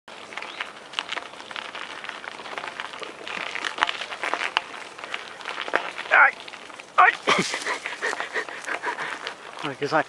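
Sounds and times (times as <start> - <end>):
bicycle riding over rough ground: 0.1 - 10.0.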